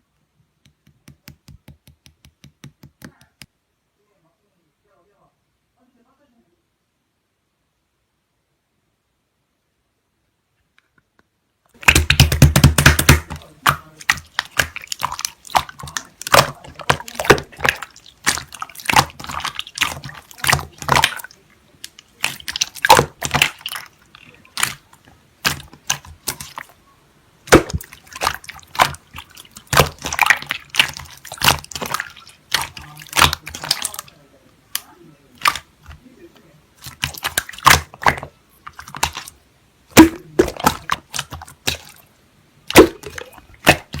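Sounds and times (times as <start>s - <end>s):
slime squishing with sticky clicks: 11.7s - 36.0s, 36.8s - 44.0s.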